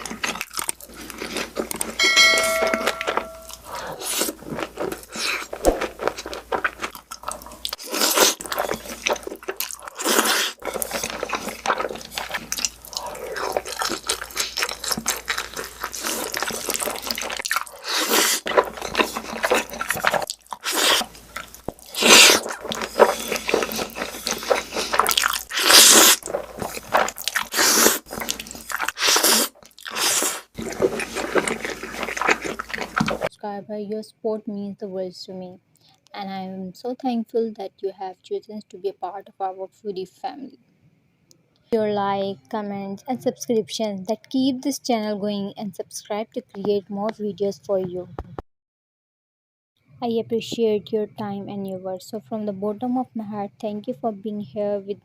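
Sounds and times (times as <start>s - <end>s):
wet sticky chewing: 0.0s - 2.0s, 2.7s - 33.3s
crunching bites: 2.9s - 33.3s.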